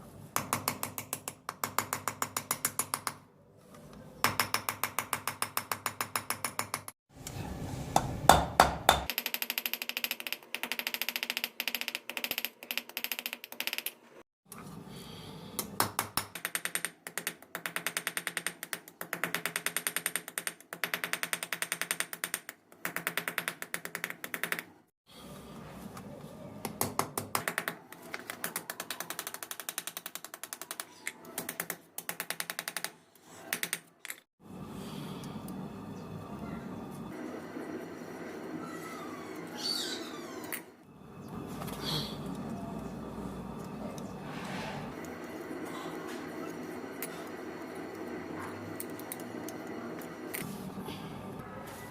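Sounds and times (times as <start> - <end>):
steady low hum: 40.9 - 51.6.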